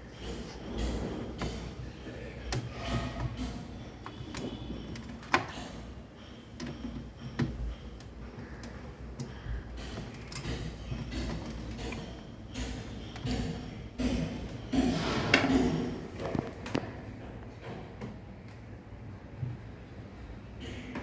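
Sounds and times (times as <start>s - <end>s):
tools clicking and knocking: 2.5s - 17.0s.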